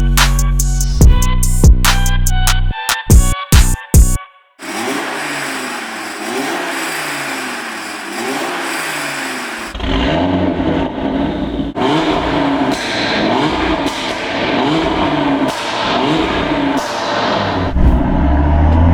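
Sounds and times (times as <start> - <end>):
car engine revving: 4.6 - 18.9.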